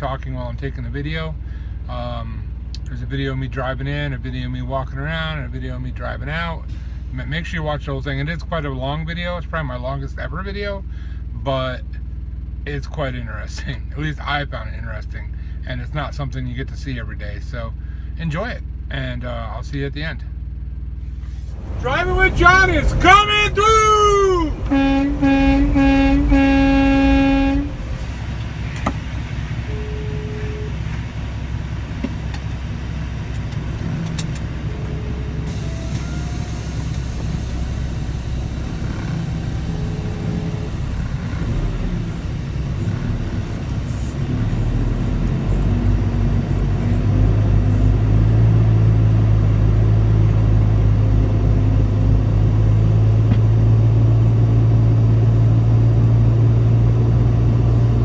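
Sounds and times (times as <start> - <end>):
truck engine rumble: 20.8 - 58.0
truck horn blast: 21.5 - 31.0, 38.2 - 43.6.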